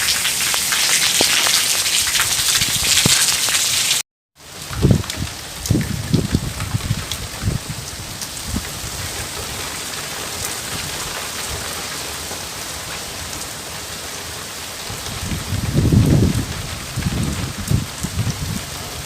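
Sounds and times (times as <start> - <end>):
rain pattering on surfaces: 0.0 - 19.0.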